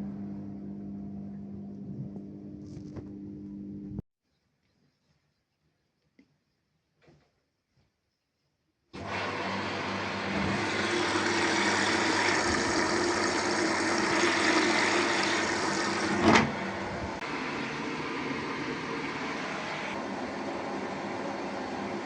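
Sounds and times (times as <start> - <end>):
washing machine running: 9.0 - 22.0.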